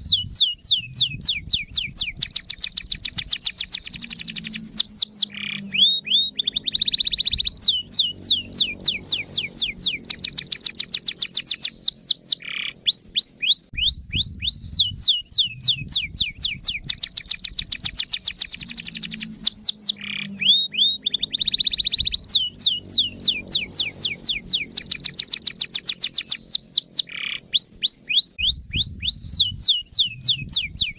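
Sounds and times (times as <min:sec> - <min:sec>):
canary singing: 0:00.0 - 0:30.9.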